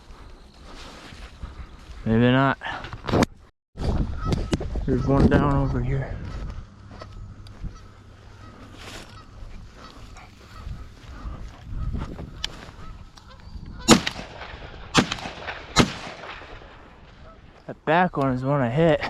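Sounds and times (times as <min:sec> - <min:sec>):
geese honking: 0:04.1 - 0:14.2, 0:17.2 - 0:17.6
loud shotgun blasts: 0:13.8 - 0:17.4.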